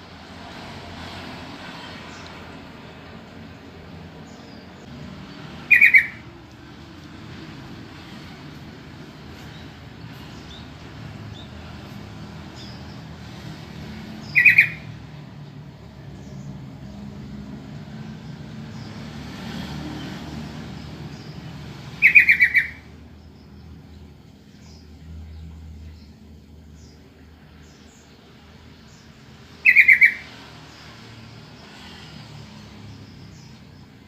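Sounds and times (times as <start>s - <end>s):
bird chattering calls: 5.6s - 6.3s, 14.2s - 15.0s, 22.0s - 22.9s, 29.6s - 30.3s.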